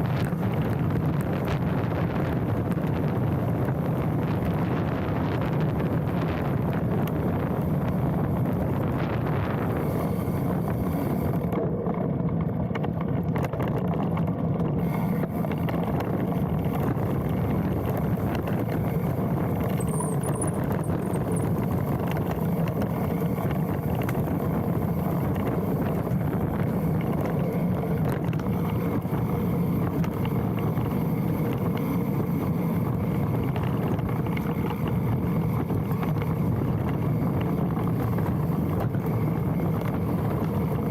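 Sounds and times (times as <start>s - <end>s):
bike rattling: 0.0s - 40.9s
bike tyres rumbling on dirt: 0.0s - 40.9s
wind on camera: 0.0s - 40.9s
bike brake squeal: 19.7s - 21.6s.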